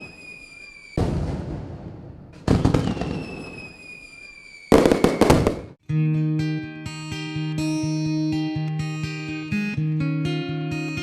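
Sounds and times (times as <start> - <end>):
high falling whistle: 0.0 - 1.2, 2.5 - 5.8
fireworks bursting and crackling: 0.0 - 5.8.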